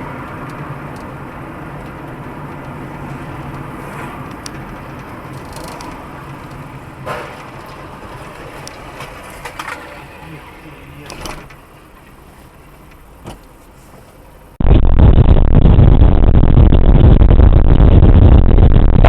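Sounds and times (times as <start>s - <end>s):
car running on road: 0.0s - 19.0s
muffled rumbling vehicle noise: 0.0s - 19.0s.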